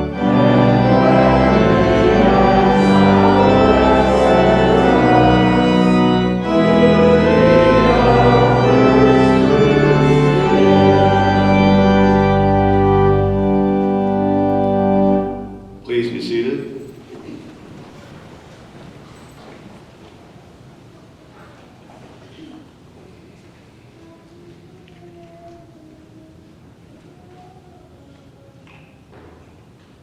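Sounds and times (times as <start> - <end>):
church organ playing chords: 0.0 - 16.6.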